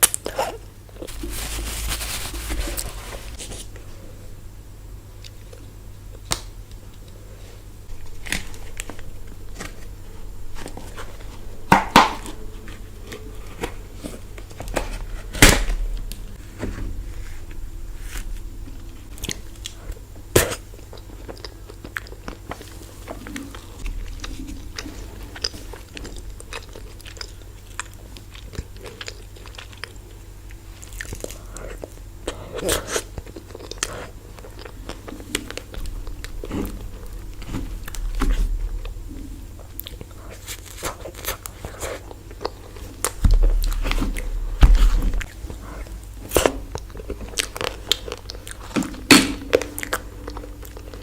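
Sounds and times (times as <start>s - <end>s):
steady low hum: 0.0s - 51.0s
person chewing ice cream: 17.0s - 51.0s.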